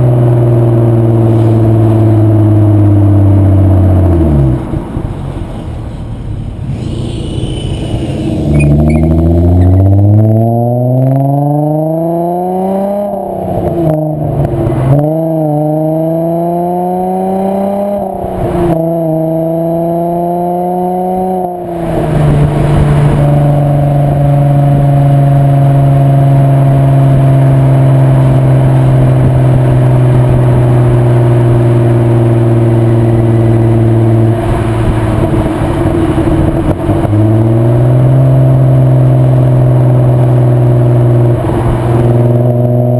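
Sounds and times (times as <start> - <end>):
car engine accelerating and shifting: 0.0 - 6.9, 7.8 - 42.9.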